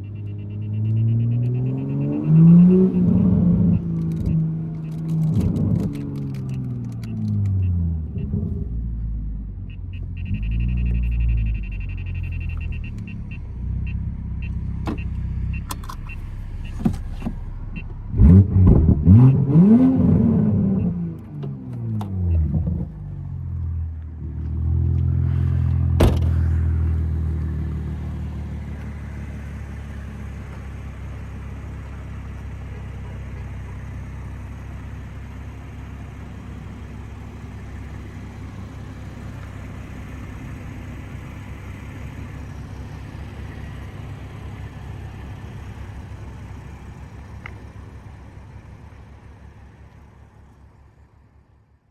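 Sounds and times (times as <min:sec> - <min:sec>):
car engine and exhaust: 0:00.0 - 0:51.9
exhaust crackles and pops: 0:41.7 - 0:50.7.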